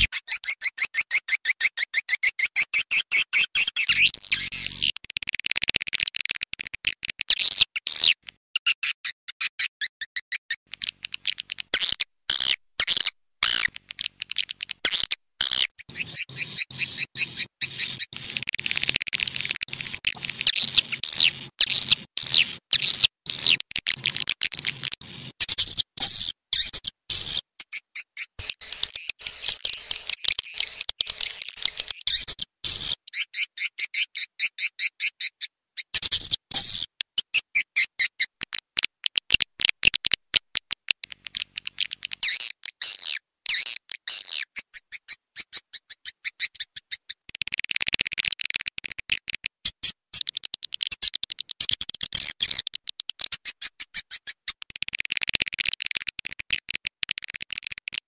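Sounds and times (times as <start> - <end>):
swiftlet clicking chirps: 12.3 - 27.4, 28.2 - 33.0.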